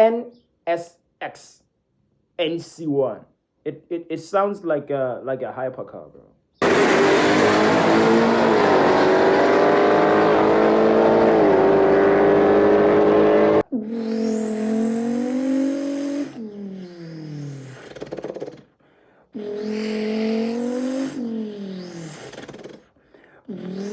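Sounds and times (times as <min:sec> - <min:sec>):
car engine running: 0:06.6 - 0:13.6.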